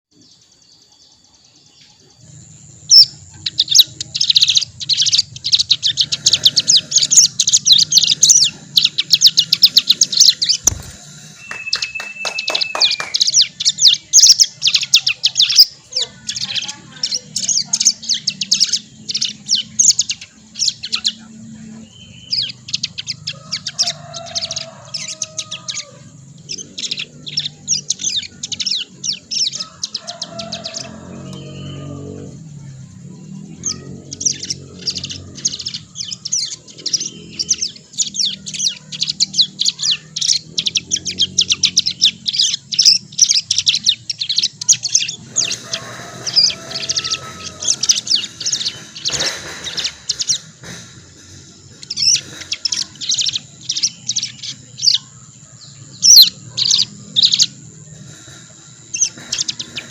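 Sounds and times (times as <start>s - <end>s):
bird twittering fast high chips: 2.8s - 21.1s, 33.7s - 55.1s.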